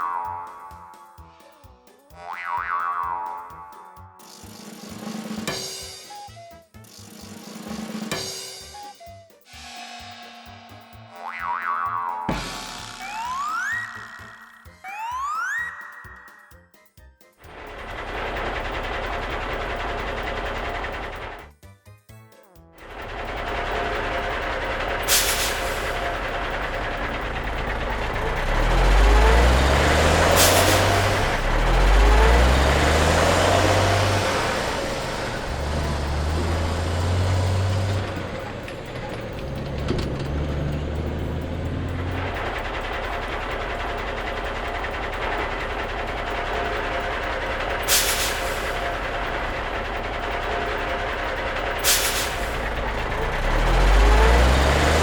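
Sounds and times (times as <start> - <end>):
truck engine hum: 17.5 - 21.5, 22.8 - 55.0
sharp hissing bursts: 22.8 - 54.6
steady hiss: 23.0 - 29.2, 42.6 - 50.6, 51.4 - 54.0.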